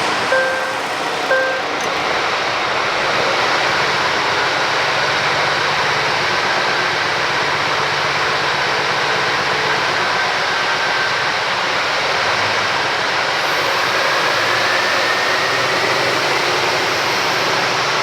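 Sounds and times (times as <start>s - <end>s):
diesel truck engine idling: 0.0s - 2.3s, 13.4s - 18.0s.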